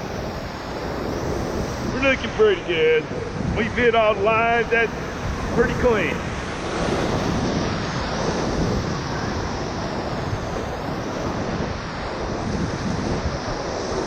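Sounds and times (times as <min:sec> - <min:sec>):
whitewater rushing: 0:00.0 - 0:14.0.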